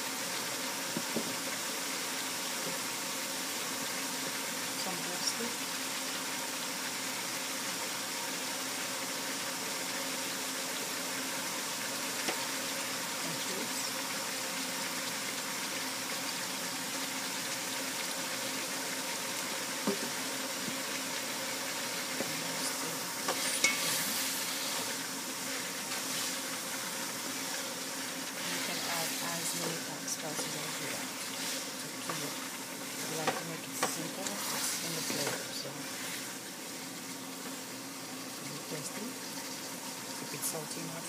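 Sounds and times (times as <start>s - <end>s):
food sizzling in oil: 0.0s - 41.0s
wooden spatula scraping a pan: 23.2s - 24.9s, 25.5s - 26.4s, 28.4s - 32.4s, 33.0s - 36.4s.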